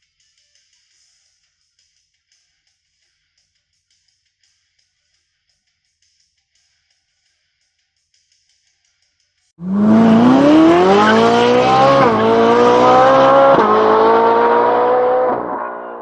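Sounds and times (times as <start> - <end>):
car engine accelerating hard: 9.6 - 16.0.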